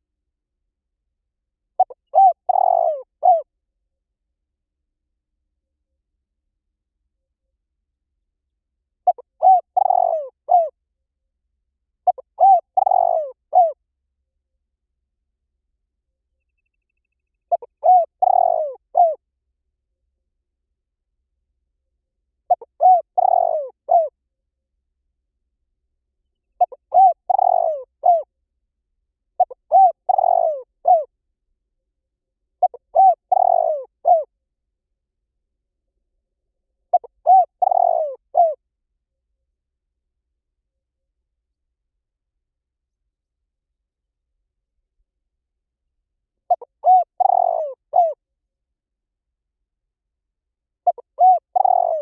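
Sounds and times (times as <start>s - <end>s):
dove cooing: 1.8s - 3.5s, 9.0s - 10.7s, 12.0s - 13.8s, 17.5s - 19.2s, 22.5s - 24.1s, 26.6s - 28.3s, 29.4s - 31.1s, 32.6s - 34.3s, 36.9s - 38.6s, 46.5s - 48.2s, 50.8s - 52.0s.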